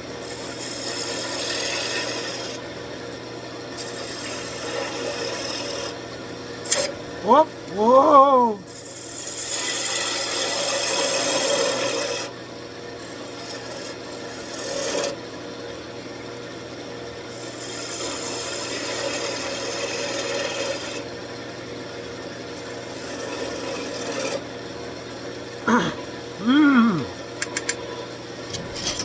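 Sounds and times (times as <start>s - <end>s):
wood lathe turning wood: 0.1s - 2.7s, 3.7s - 12.3s, 13.0s - 15.3s, 17.3s - 21.1s, 22.6s - 24.6s.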